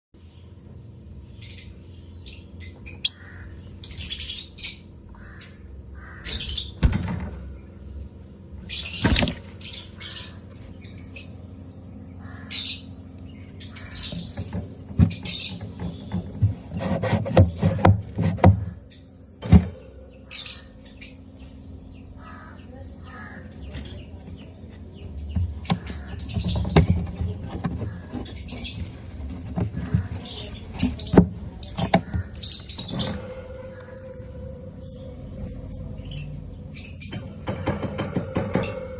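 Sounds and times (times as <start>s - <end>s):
lovebirds chirping: 20.0s - 37.2s.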